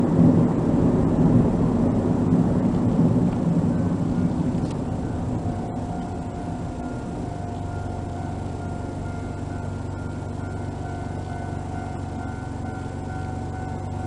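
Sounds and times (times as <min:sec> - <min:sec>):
car engine idling: 0:00.0 - 0:14.0
level crossing warning alarm: 0:03.6 - 0:14.0.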